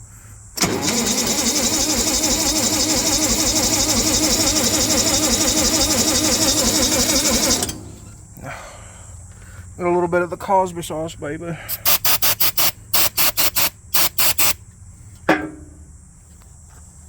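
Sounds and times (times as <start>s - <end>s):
engine cranked by electric starter: 0.6s - 8.4s, 11.7s - 14.6s.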